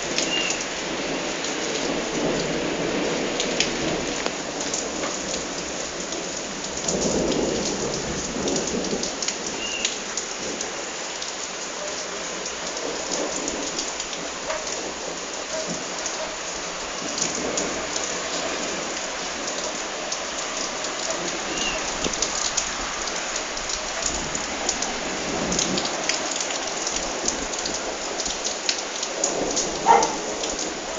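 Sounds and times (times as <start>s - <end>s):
heavy rain pattering: 0.0s - 30.9s
thunder rumbling: 12.6s - 30.9s.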